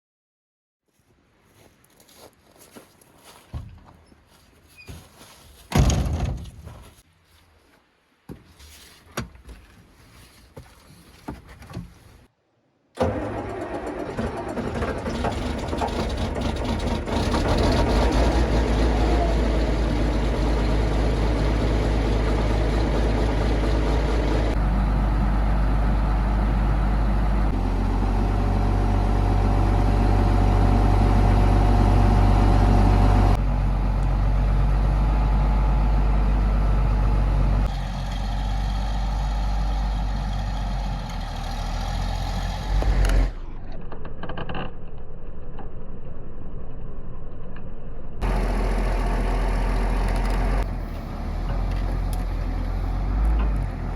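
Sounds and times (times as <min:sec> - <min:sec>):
excavator diesel engine running: 0:13.0 - 0:43.6, 0:48.2 - 0:53.9.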